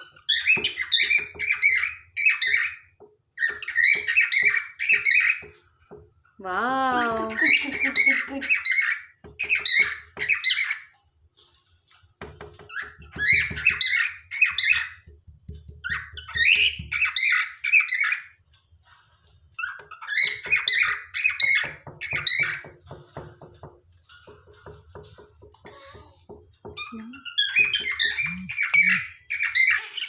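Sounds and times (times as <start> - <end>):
cockatiel chirping and warbling: 0.0 - 5.6, 7.0 - 11.0, 12.5 - 15.1, 15.7 - 18.4, 19.5 - 22.9, 26.6 - 30.0.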